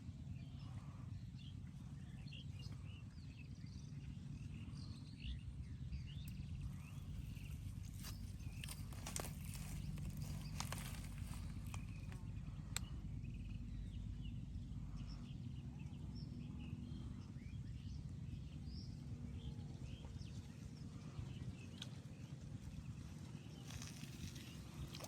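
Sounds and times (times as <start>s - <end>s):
low rumble: 3.8s - 21.6s.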